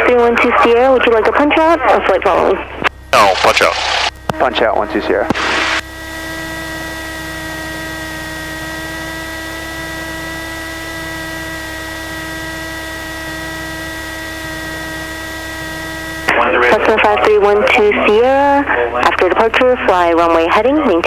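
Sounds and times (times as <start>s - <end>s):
idling aircraft engine whine: 0.0s - 21.0s
headset hiss: 5.3s - 5.9s.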